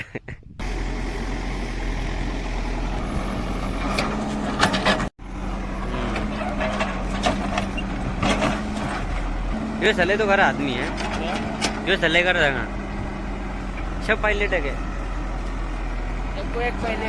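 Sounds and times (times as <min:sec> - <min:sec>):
heavy diesel engine running: 0:00.6 - 0:17.0
sharp knocks and clatter: 0:03.8 - 0:05.1, 0:06.2 - 0:09.6, 0:10.7 - 0:12.0.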